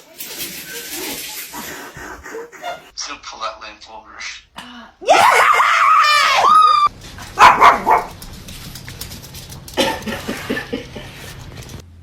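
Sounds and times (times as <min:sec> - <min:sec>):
dog crying out: 0:05.0 - 0:08.0
dog barking: 0:07.3 - 0:08.2.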